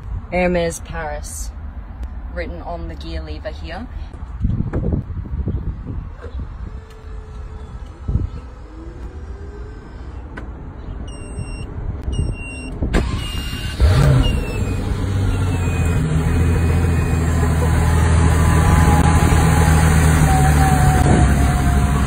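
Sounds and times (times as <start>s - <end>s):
short electronic beeps: 11.0s - 12.8s
car engine starting and idling: 12.0s - 22.0s.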